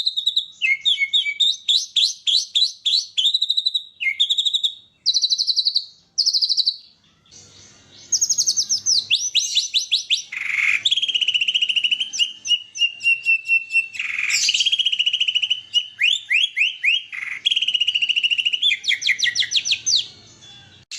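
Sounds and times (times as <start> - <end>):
bird singing trills: 0.0 - 20.9
harsh bird notes: 0.0 - 20.9.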